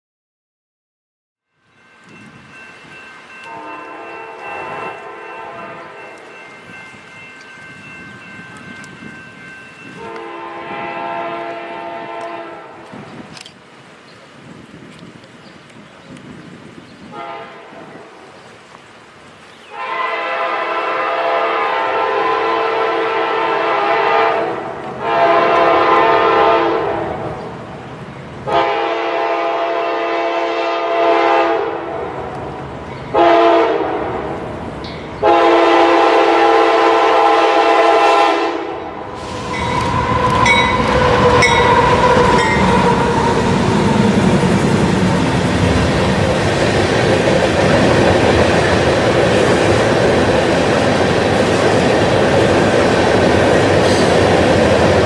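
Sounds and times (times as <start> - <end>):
locomotive air horn blasts: 3.5 - 6.1, 10.0 - 12.9, 17.1 - 18.2, 19.7 - 27.3, 28.5 - 32.2, 33.1 - 34.4, 35.2 - 43.5
train wheels clacking over rail joints: 39.4 - 55.0.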